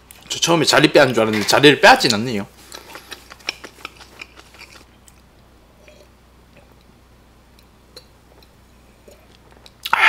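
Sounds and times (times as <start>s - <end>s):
person chewing food: 2.6s - 6.9s
small mouth clicks: 9.1s - 10.0s.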